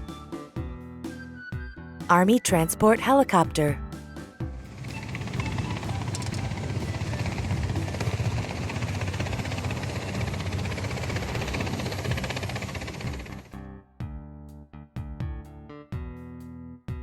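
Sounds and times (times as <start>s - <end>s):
helicopter rotor chopping: 4.6s - 13.5s.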